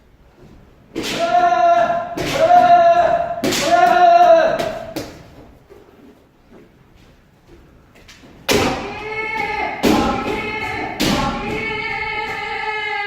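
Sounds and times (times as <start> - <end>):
people shouting drawn-out shouts: 1.0 - 5.0, 8.5 - 13.0.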